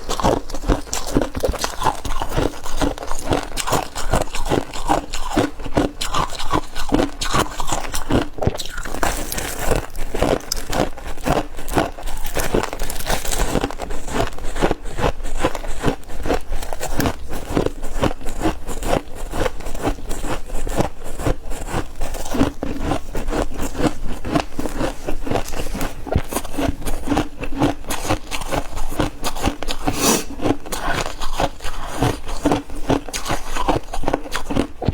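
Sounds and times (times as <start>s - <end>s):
chewing crunchy frost: 0.0s - 34.9s.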